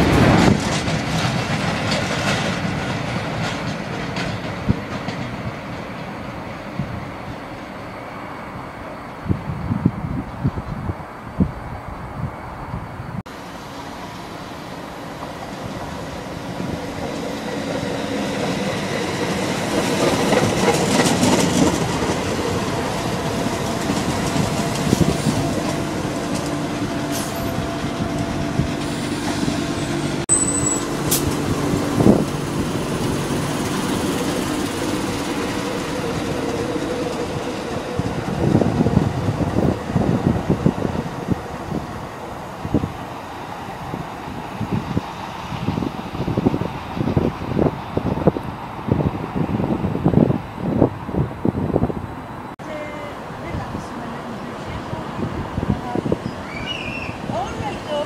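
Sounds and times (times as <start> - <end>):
train wheels clattering: 0.0 - 6.7, 15.2 - 40.6
diesel train engine and wheels: 0.0 - 58.0.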